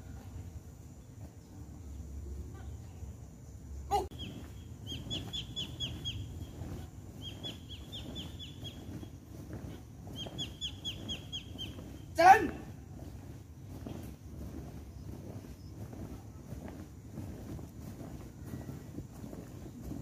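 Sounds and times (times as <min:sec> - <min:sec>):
bird chirping: 0:04.1 - 0:12.2.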